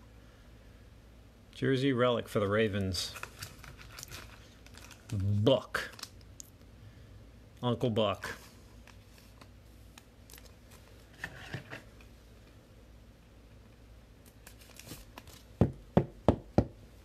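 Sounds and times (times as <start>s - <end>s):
wrappers rustling: 2.9s - 6.2s, 14.3s - 15.5s.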